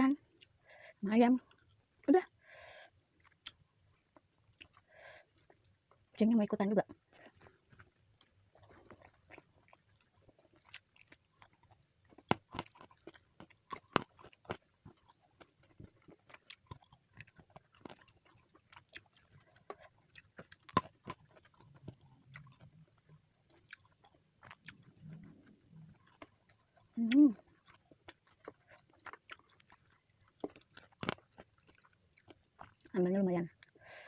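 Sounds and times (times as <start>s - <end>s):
chewing and crunching food: 0.1s - 34.0s.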